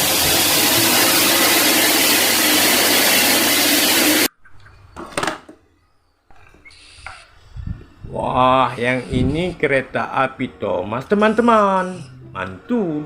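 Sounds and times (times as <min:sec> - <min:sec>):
loud mechanical whirring: 0:00.0 - 0:04.3.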